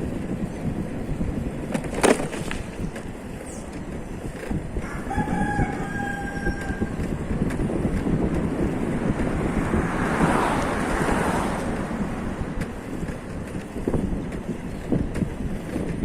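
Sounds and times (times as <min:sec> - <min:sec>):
road rumble and wind noise: 0:00.0 - 0:16.0
rooster crowing: 0:04.8 - 0:07.0.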